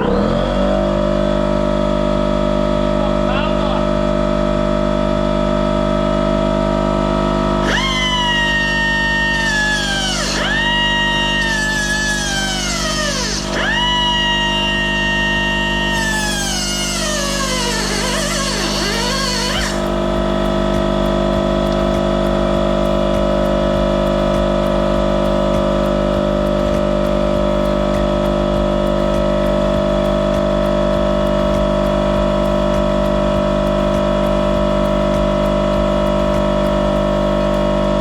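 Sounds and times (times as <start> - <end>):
power tool motor humming: 7.6 - 38.0.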